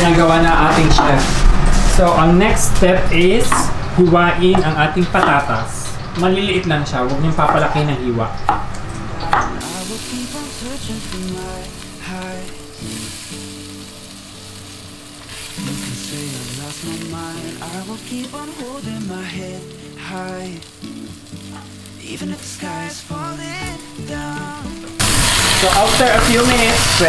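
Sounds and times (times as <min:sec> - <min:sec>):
background music: 0:08.4 - 0:27.0
potatoes sizzling in oil: 0:09.6 - 0:27.0.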